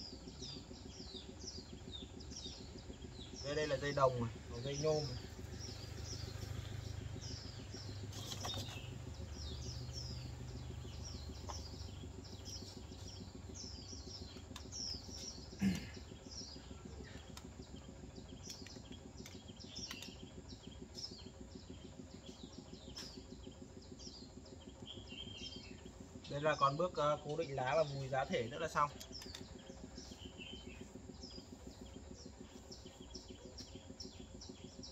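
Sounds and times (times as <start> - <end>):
low hum: 0.0 - 34.9
small birds chirping: 0.0 - 34.9.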